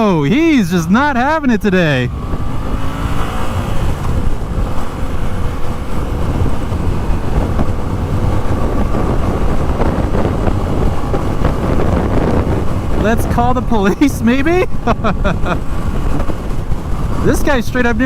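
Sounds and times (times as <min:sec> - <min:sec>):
motorcycle engine running: 0:00.0 - 0:18.0
wind noise on microphone: 0:00.0 - 0:18.0.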